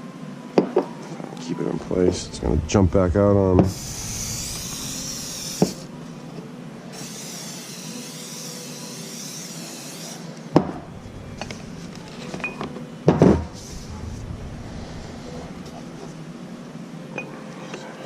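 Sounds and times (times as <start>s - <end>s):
steady hiss: 1.4s - 8.0s, 10.7s - 17.1s.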